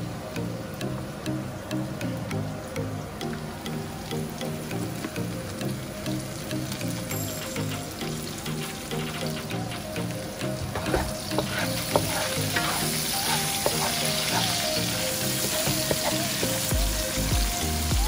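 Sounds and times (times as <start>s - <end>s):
soft background music: 0.0s - 18.0s
vegetables sizzling in hot oil: 4.2s - 18.0s
wooden spatula scraping pan: 10.6s - 14.6s.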